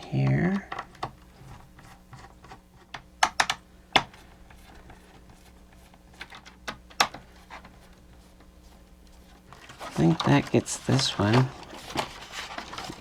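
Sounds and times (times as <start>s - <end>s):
plastic parts clicking and knocking: 0.5s - 5.0s, 5.8s - 7.9s.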